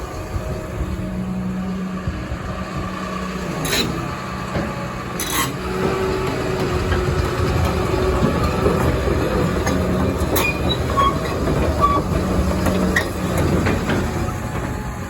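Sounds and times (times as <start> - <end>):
excavator diesel engine running: 0.0 - 15.0
sharp metallic noises: 3.5 - 14.7
metal scraping: 3.5 - 14.8.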